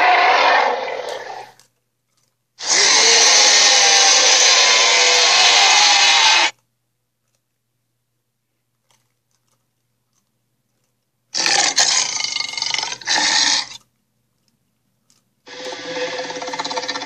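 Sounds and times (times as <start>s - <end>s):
dinosaur roar: 0.0s - 1.6s, 2.6s - 6.5s, 11.4s - 13.8s, 15.5s - 17.0s.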